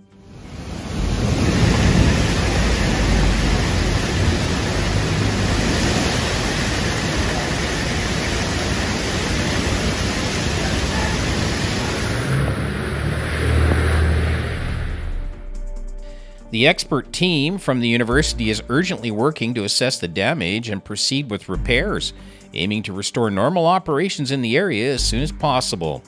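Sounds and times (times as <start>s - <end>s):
heavy rain pouring: 0.2s - 15.3s
rushing water rumble: 0.2s - 15.6s.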